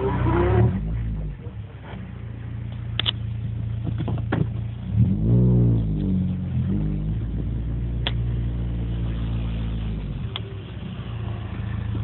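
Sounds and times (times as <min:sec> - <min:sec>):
car exhaust running: 0:00.0 - 0:12.0.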